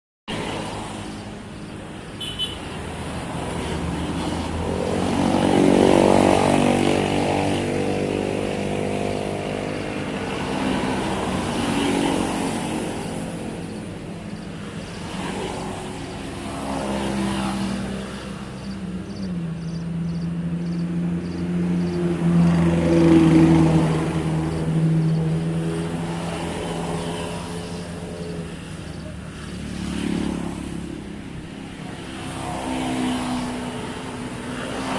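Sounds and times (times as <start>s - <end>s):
motor vehicles passing: 0.3s - 34.9s.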